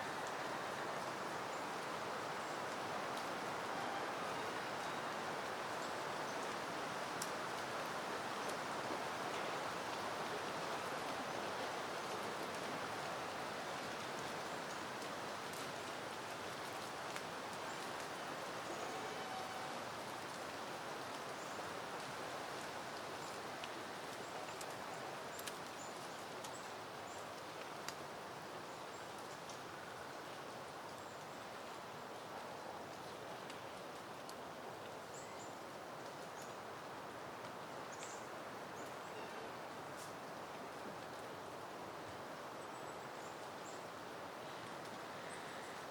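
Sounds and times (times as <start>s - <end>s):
wind rustling foliage: 0.0s - 45.9s.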